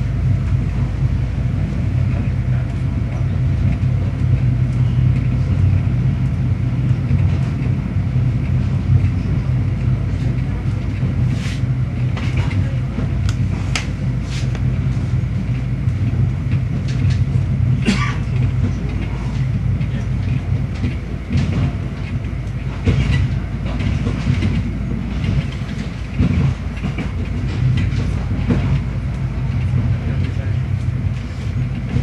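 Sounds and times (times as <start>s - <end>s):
train rumble and hum: 0.0s - 32.0s.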